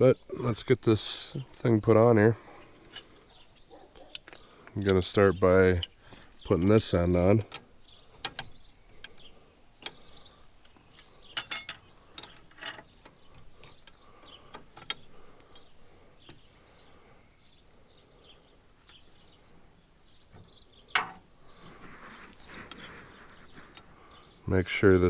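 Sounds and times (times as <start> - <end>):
wrench clanks: 11.4 - 12.9.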